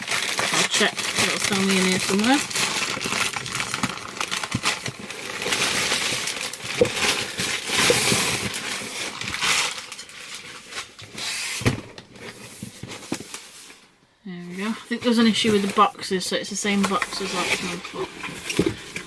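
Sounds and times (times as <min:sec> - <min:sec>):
packing paper rustling: 0:00.0 - 0:19.0.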